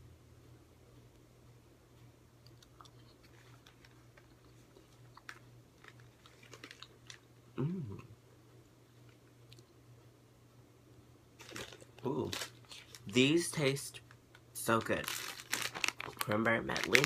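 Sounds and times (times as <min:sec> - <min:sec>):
steady low hum: 0:00.0 - 0:17.0
faint chewing with mouth clicks: 0:02.3 - 0:08.1, 0:08.9 - 0:09.8
person humming mm: 0:07.5 - 0:08.2.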